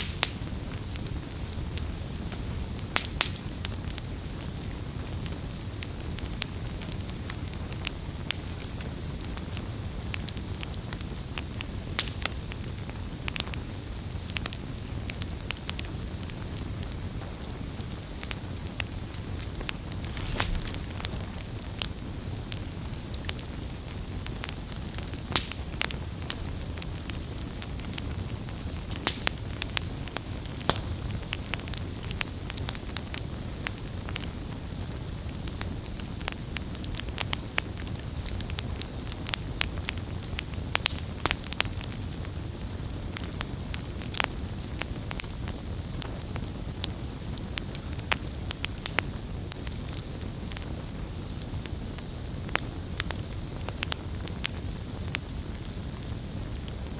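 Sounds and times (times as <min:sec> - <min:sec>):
campfire crackling and popping: 0:00.0 - 0:56.9.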